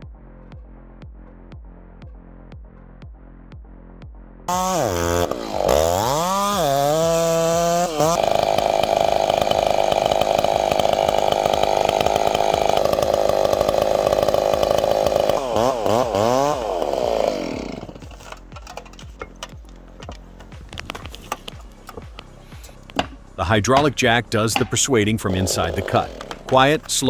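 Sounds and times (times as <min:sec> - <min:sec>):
chainsaw revving: 0:04.5 - 0:19.1, 0:25.1 - 0:27.0.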